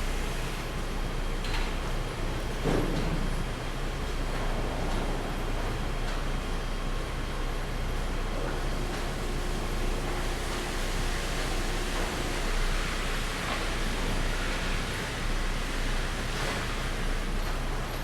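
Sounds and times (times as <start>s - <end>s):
machinery hiss: 9.1s - 17.7s.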